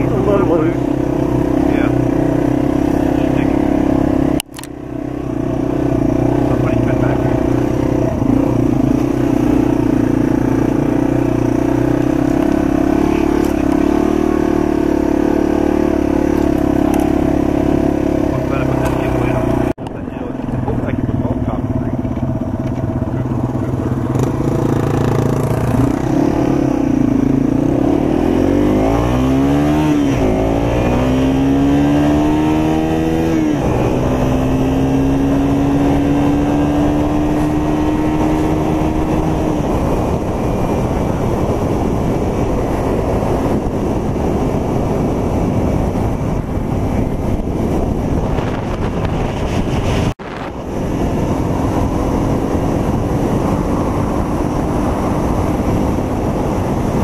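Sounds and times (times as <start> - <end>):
motorcycle engine revving: 0.0 - 57.0
wind rushing: 23.9 - 57.0.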